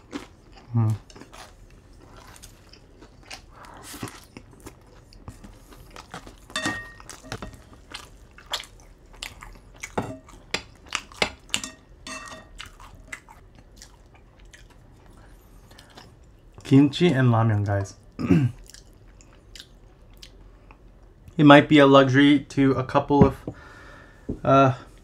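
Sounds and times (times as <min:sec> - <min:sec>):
person chewing and crunching food: 0:00.0 - 0:16.7, 0:18.4 - 0:21.0.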